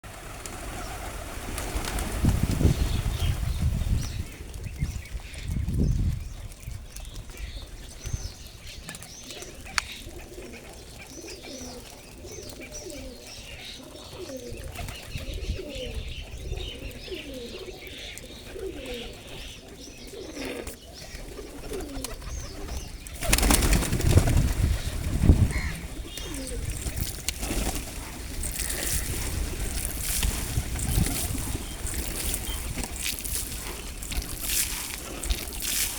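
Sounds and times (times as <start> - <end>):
small birds chirping: 0.5 - 35.9
pigeons cooing: 9.2 - 35.9.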